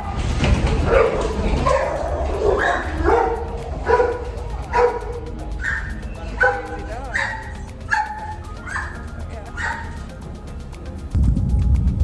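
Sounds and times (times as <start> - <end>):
steady low rumble: 0.0 - 12.0
small dog yipping and barking: 5.6 - 10.0.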